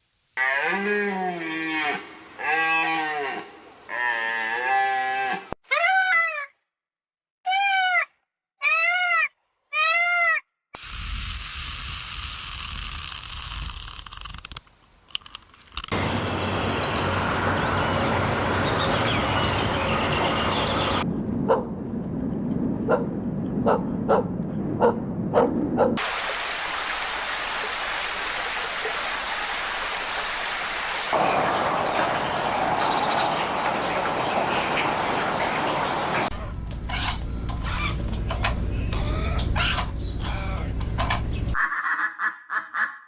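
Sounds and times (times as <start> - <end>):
animal bleating: 0.4 - 5.6, 38.9 - 40.7.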